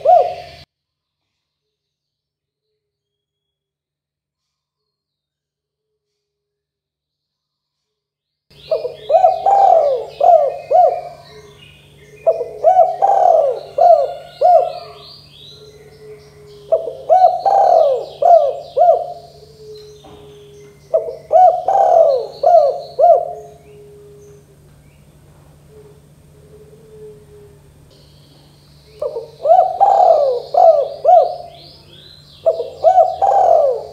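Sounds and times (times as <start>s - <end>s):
dove cooing: 0.0s - 0.6s, 8.6s - 33.9s
low steady hum: 0.0s - 0.7s, 8.5s - 33.9s
higher chirping: 8.5s - 26.4s, 27.6s - 33.9s.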